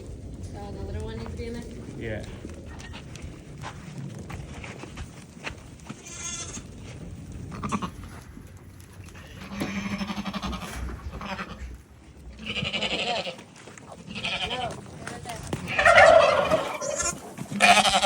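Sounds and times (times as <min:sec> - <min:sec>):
goats bleating: 0:05.9 - 0:06.7, 0:09.2 - 0:14.8, 0:15.7 - 0:18.0.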